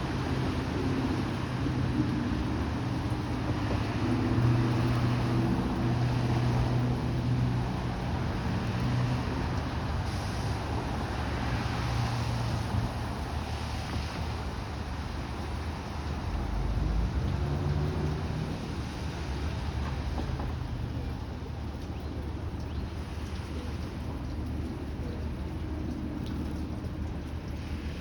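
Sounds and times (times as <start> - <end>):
constant noisy hiss: 0.0 - 28.0.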